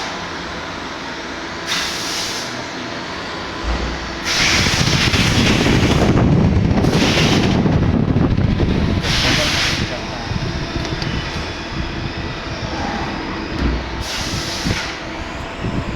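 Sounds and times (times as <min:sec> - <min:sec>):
machine running: 0:03.1 - 0:15.9.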